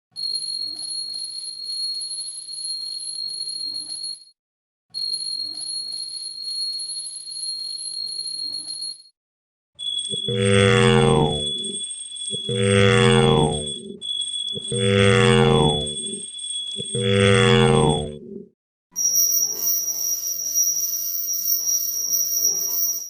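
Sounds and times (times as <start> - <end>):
high-pitched ringing tone: 0.2 - 4.3, 9.8 - 18.4, 19.0 - 23.0
different steady tone: 10.1 - 18.4.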